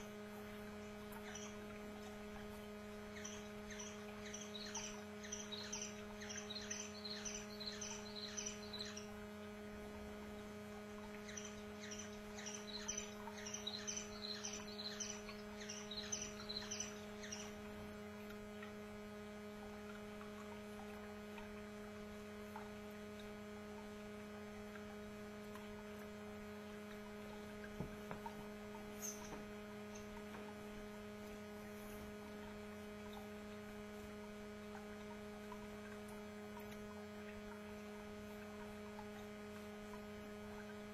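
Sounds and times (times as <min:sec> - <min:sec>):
electrical hum: 0:00.0 - 0:40.9
canary chirping: 0:01.2 - 0:01.6, 0:03.0 - 0:09.1, 0:11.2 - 0:17.6, 0:29.0 - 0:30.1.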